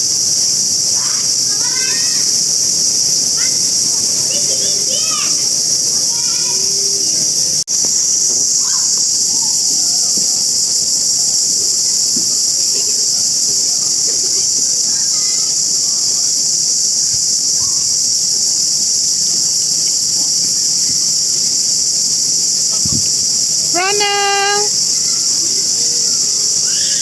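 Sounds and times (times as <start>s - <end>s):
insect chorus shrill drone: 0.0s - 27.0s
faint voices: 0.9s - 7.4s, 22.6s - 27.0s.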